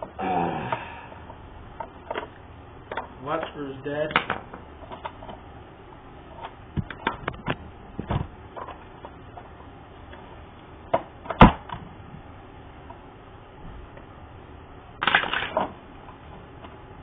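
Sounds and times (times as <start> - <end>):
plastic parts clicking and knocking: 1.1 - 5.4, 6.3 - 9.5, 15.0 - 15.8.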